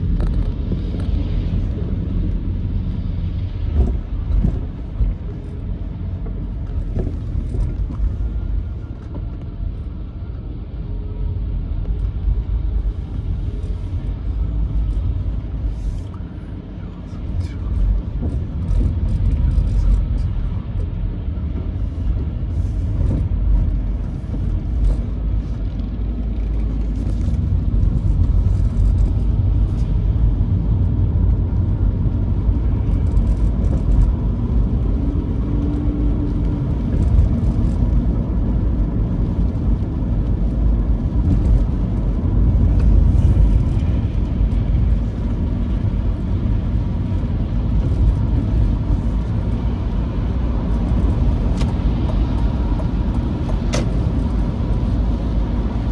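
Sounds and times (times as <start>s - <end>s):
vehicle engine and road rumble: 0.0s - 55.9s.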